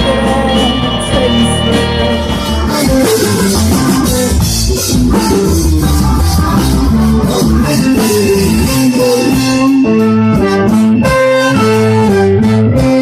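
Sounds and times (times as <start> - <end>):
guitar-led music: 0.0 - 13.0
live band music: 0.0 - 13.0.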